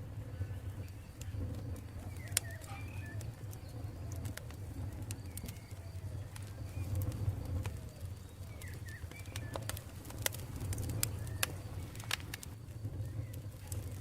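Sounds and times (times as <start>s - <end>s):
campfire crackling and popping: 0.0s - 14.0s
faint bird calls: 0.4s - 9.8s.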